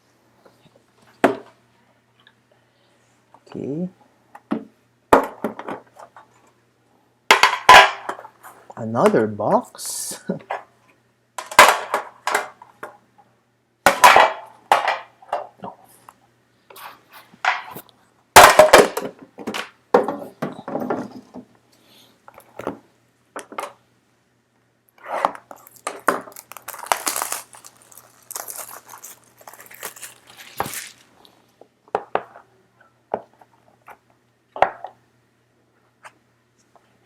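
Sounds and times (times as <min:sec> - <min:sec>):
packaging rustling: 0:25.4 - 0:31.3
wrapper crinkling: 0:25.5 - 0:31.3.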